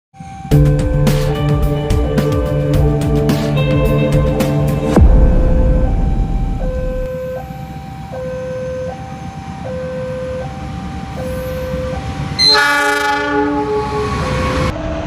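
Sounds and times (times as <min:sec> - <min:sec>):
low rumble of approaching train: 0:00.2 - 0:15.0
two-tone level crossing alarm: 0:06.6 - 0:14.4
loud train horn: 0:11.3 - 0:14.7.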